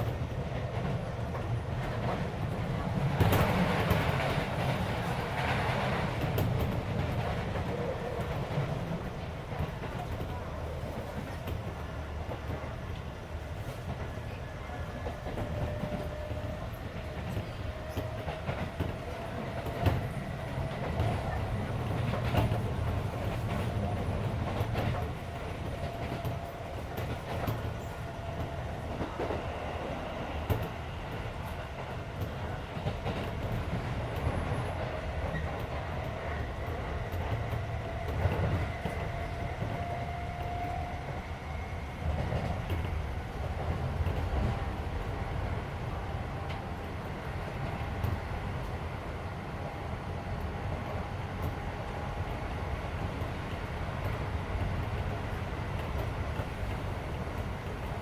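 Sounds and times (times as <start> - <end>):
electric train rumble: 0.0 - 58.0.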